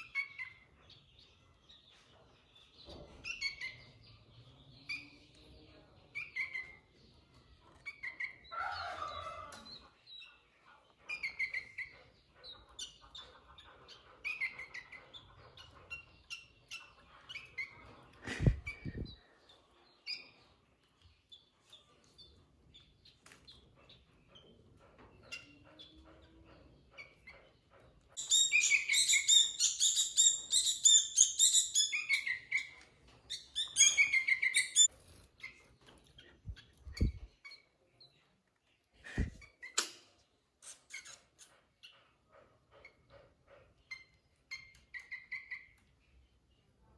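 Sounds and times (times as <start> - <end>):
bulbul calling: 28.2 - 32.5, 33.6 - 34.9.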